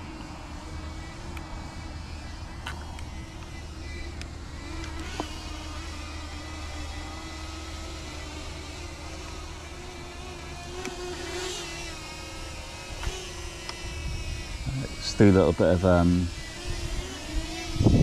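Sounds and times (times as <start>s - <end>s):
drone propellers humming: 0.0s - 18.0s.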